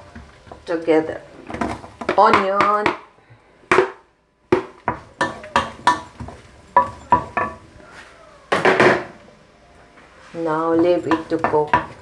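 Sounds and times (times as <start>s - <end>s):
metal utensil clinking on pan: 4.9s - 7.8s, 10.5s - 12.0s.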